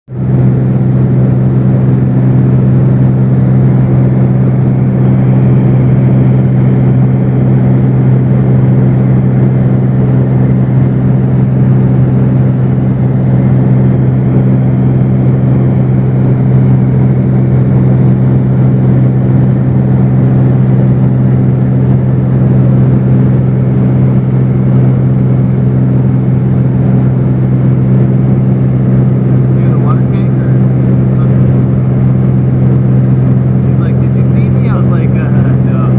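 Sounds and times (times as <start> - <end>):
propeller plane engine droning: 0.1 - 35.9.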